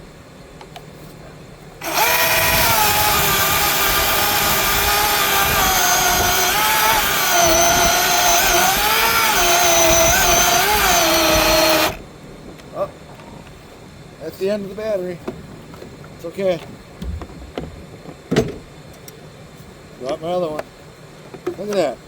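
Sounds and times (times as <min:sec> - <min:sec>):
chainsaw cutting wood: 0:01.8 - 0:12.0.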